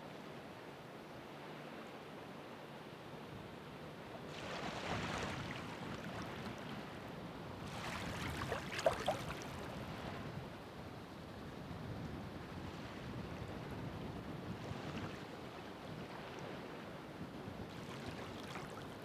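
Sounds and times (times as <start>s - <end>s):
ocean waves breaking on shore: 3.9s - 10.9s, 12.5s - 19.0s
sharp water splashes: 7.8s - 9.6s.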